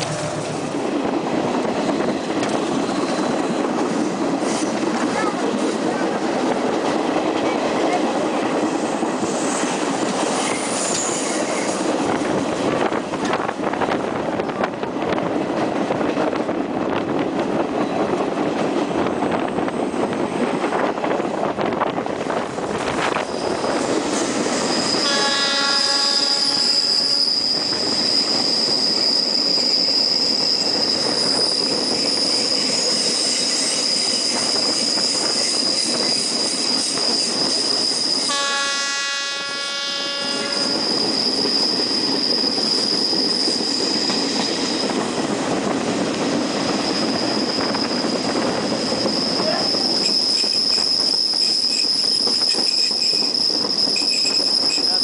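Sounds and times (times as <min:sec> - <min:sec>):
train wheel squeal: 0:01.7 - 0:03.8, 0:07.5 - 0:13.9, 0:22.8 - 0:55.0
train horn: 0:24.9 - 0:27.2, 0:38.2 - 0:40.9.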